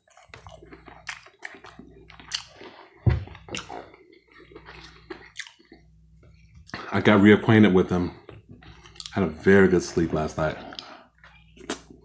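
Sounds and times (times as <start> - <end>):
chewing with wet smacks: 0.0 - 7.1, 8.1 - 9.3, 10.5 - 12.0
low thump: 3.0 - 3.4.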